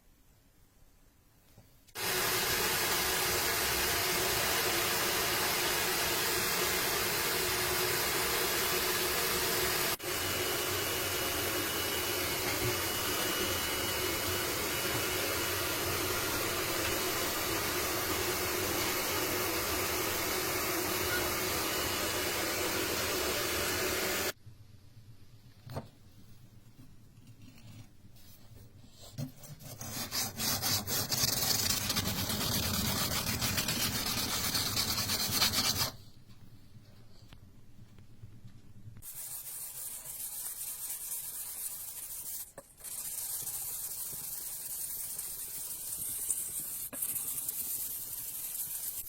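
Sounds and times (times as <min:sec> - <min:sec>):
workshop machine running with hiss: 0:02.0 - 0:24.4.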